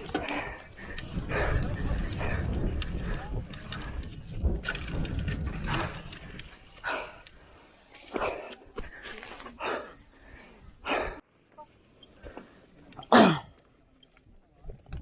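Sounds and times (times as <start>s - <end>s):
person breathing hard: 0.0s - 3.3s.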